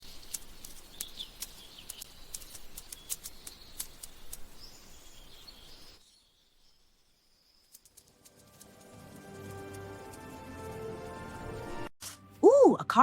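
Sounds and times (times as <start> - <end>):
bird chirps: 0.0 - 8.0.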